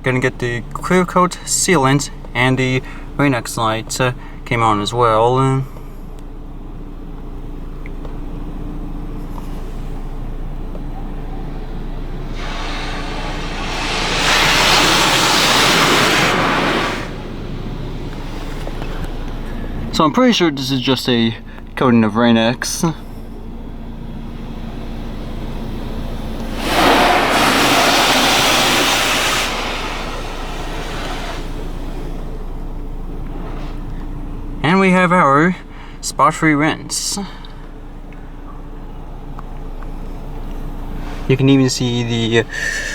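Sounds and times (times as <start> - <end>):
car wash machinery humming: 0.0 - 42.9
water spray hissing: 12.2 - 19.6, 26.2 - 32.4.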